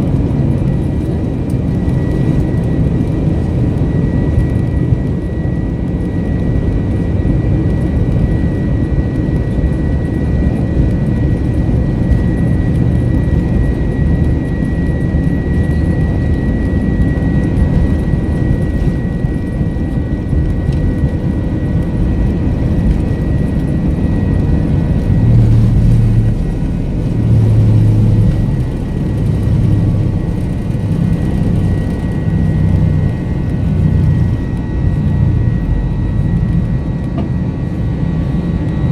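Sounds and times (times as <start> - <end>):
jet engines roaring: 0.0 - 38.9.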